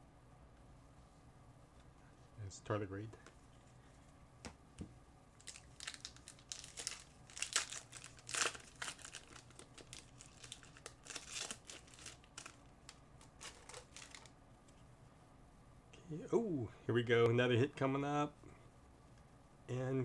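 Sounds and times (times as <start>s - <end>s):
foil wrapper crinkling: 5.4s - 14.3s.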